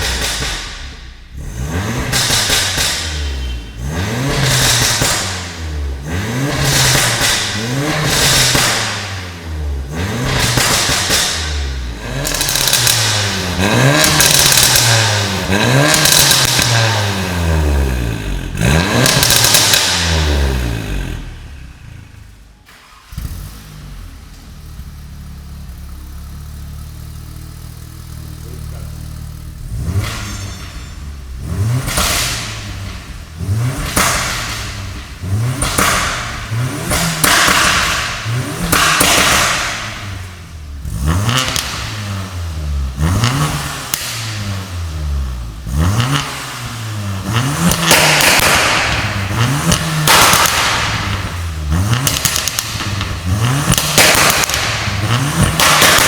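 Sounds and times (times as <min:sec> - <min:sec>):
car engine revving: 0:00.0 - 0:56.0
exhaust crackles: 0:00.0 - 0:56.0
engine idling: 0:21.3 - 0:42.0.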